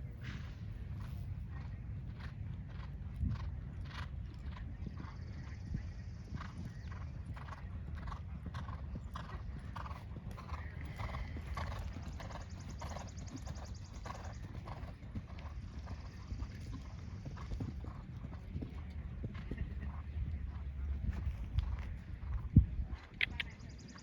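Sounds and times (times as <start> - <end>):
horse hoofbeats: 6.3 - 22.6.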